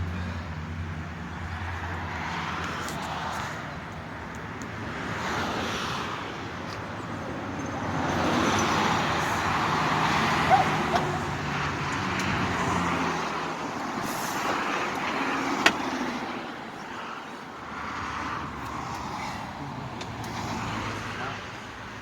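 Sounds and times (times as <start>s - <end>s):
road traffic noise: 0.0s - 22.0s
motor vehicle running: 7.6s - 16.4s.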